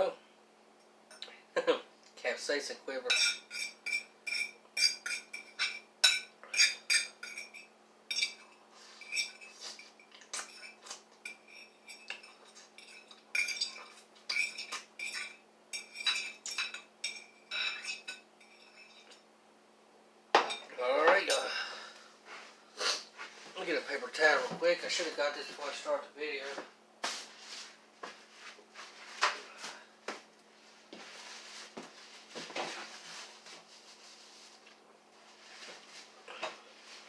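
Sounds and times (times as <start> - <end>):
utensil clinking against a bowl: 3.1 - 19.2.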